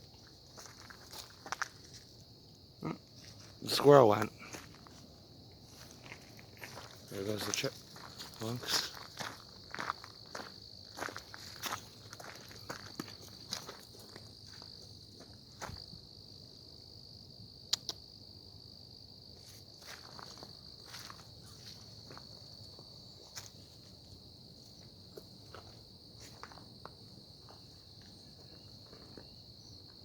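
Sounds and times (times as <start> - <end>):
insects trilling: 0.0 - 30.0
footsteps crunching on trail: 0.2 - 2.2, 3.1 - 15.9, 19.4 - 29.8
sharp click: 17.7 - 18.0.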